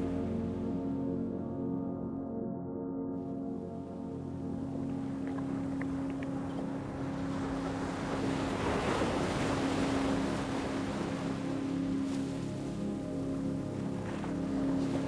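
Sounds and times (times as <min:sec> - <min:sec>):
ocean wave surging and washing back: 0:04.8 - 0:15.0.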